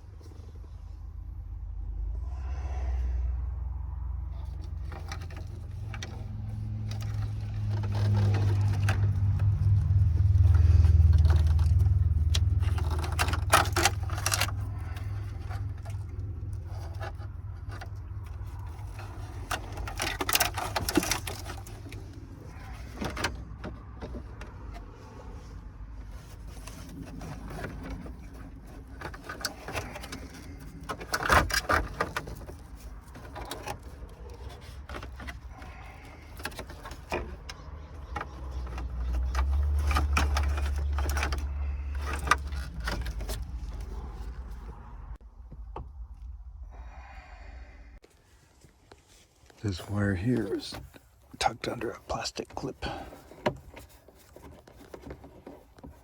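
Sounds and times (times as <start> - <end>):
low rumble: 1.0 - 36.4, 39.8 - 48.3
tools scraping and clinking plastic: 4.3 - 45.9, 48.9 - 56.0.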